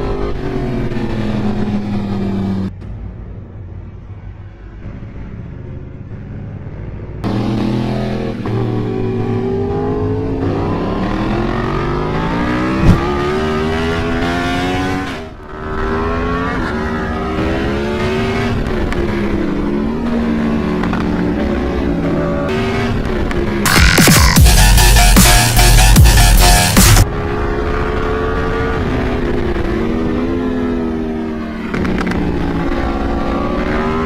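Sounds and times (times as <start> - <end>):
motorcycle engine accelerating: 6.0 - 24.9
sharp knock: 12.8 - 13.2.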